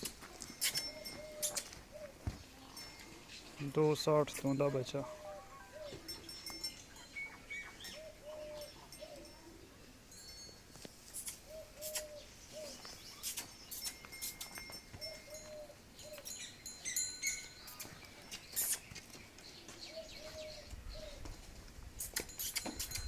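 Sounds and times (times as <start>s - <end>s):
pigeons cooing: 0.0s - 3.7s, 5.0s - 10.0s, 11.1s - 16.5s, 17.6s - 21.5s
small birds chirping: 0.0s - 9.8s, 10.8s - 23.0s.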